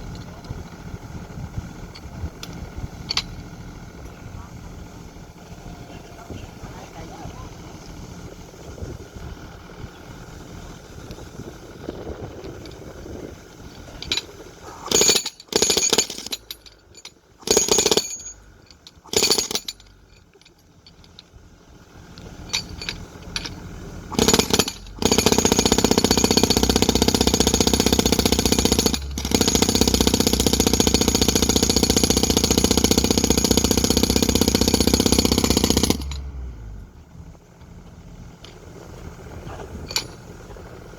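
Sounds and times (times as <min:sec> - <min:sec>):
jackhammer hammering: 0:13.6 - 0:16.7, 0:17.4 - 0:19.9, 0:22.4 - 0:36.8, 0:38.4 - 0:40.9.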